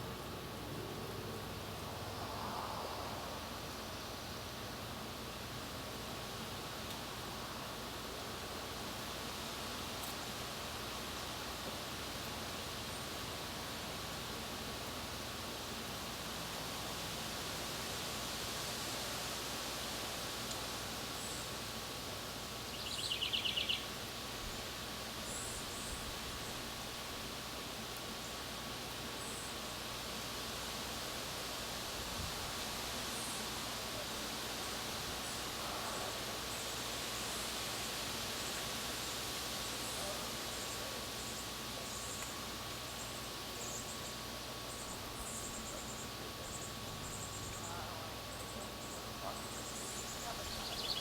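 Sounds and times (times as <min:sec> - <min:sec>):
faint constant whine: 0:00.0 - 0:51.0
steady hiss: 0:00.0 - 0:51.0
songbird trill: 0:22.5 - 0:26.8, 0:38.4 - 0:51.0
small birds chirping: 0:22.7 - 0:26.7, 0:38.4 - 0:51.0.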